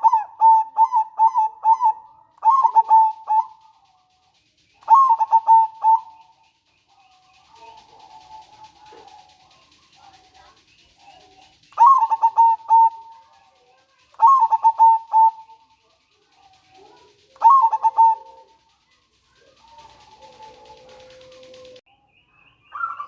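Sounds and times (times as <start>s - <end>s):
dove cooing: 0.0s - 21.8s.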